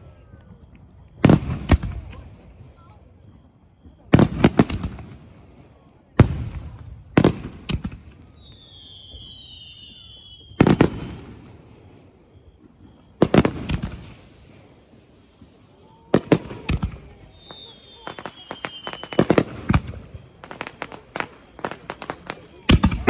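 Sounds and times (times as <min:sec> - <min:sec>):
high whistling fireworks: 0:00.0 - 0:23.0
firework shells booming: 0:01.2 - 0:02.2, 0:08.9 - 0:11.9, 0:12.5 - 0:14.6, 0:15.3 - 0:23.0.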